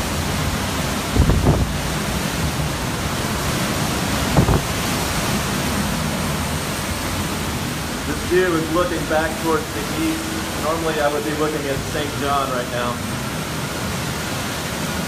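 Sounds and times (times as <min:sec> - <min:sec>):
wind buffeting microphone: 0:00.0 - 0:08.2
strong wind rushing: 0:00.0 - 0:10.8.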